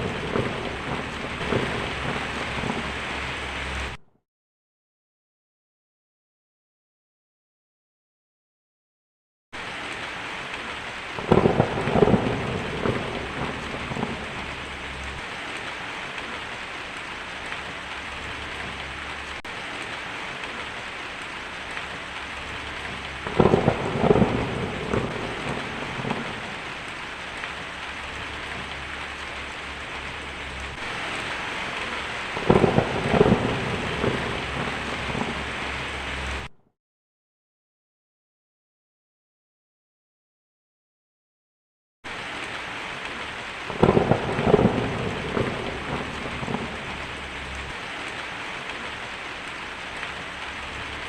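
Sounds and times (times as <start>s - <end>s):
rain hissing: 0.0s - 4.0s, 9.6s - 36.5s, 42.1s - 51.0s
thunder rolling: 0.0s - 4.0s, 11.2s - 16.2s, 21.6s - 36.5s, 43.7s - 47.8s.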